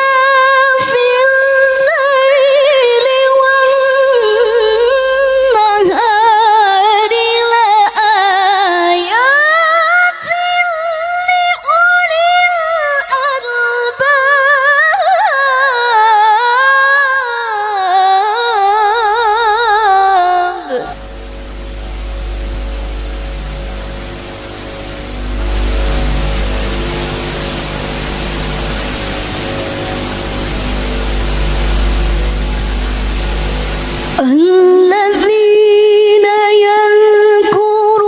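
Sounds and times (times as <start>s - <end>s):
woman reciting melodically: 0.0s - 21.0s, 34.2s - 38.0s.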